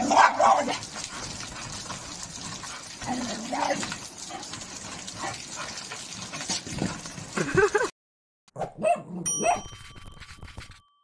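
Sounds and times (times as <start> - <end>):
rain pattering on wooden deck: 0.0 - 7.9
jingle with ringing dings: 9.2 - 11.0.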